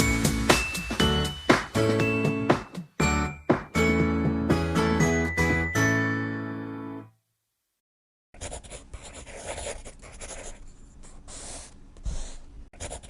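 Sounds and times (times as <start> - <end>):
drawing tool scratching on paper: 8.4 - 13.0.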